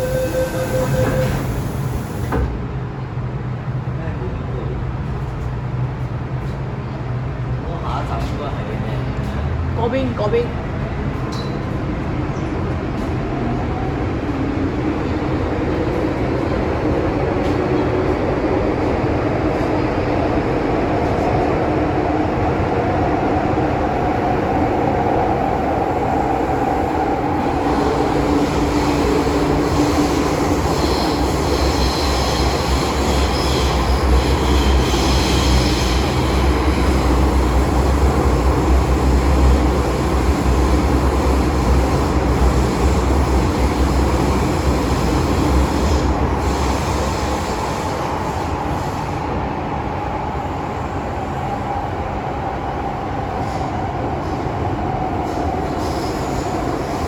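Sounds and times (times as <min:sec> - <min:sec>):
high wheel squeal: 0:00.0 - 0:02.2, 0:27.8 - 0:36.8
train wheels rumbling: 0:00.0 - 0:57.0.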